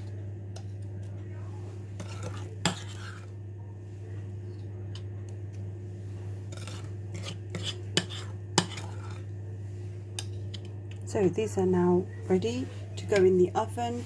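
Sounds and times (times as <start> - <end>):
steady low hum: 0.0 - 14.0
spoon scraping and tapping bowl: 2.0 - 3.3, 6.5 - 9.2.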